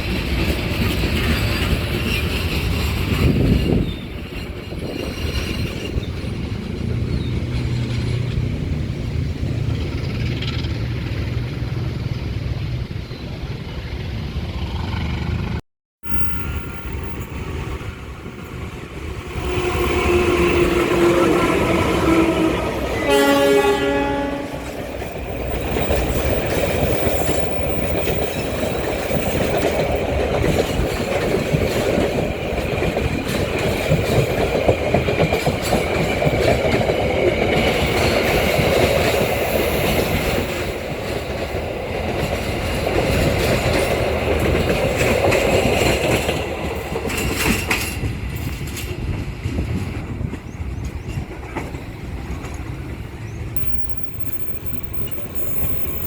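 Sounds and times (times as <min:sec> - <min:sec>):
wheels clattering over rail joints: 0:00.0 - 0:11.7, 0:24.5 - 0:52.9
passing train rumble: 0:00.0 - 0:56.0.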